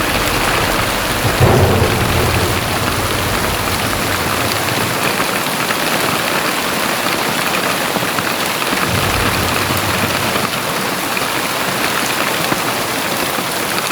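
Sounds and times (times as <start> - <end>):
short low rumble: 0.0 - 5.8, 8.9 - 11.1
very heavy rain pouring: 0.0 - 13.9.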